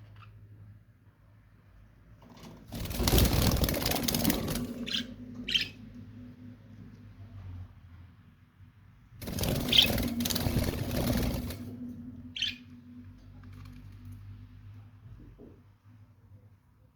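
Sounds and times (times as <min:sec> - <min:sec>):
wings fluttering: 0:02.4 - 0:05.8, 0:09.2 - 0:12.6.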